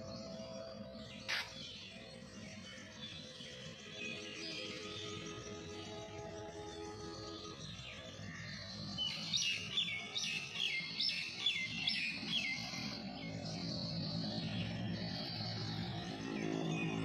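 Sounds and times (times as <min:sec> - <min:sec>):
songbird repeated high chirps: 0:01.2 - 0:01.8.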